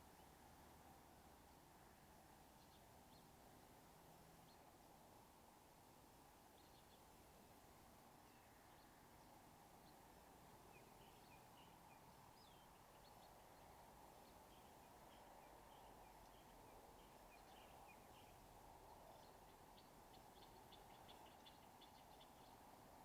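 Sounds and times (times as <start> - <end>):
low steady hiss: 0.0 - 23.0
bird chirps: 10.7 - 22.6.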